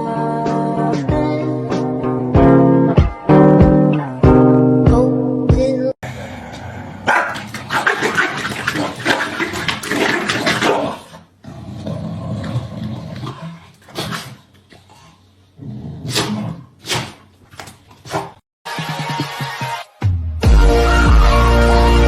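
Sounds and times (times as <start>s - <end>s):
dog barking: 7.0s - 8.3s.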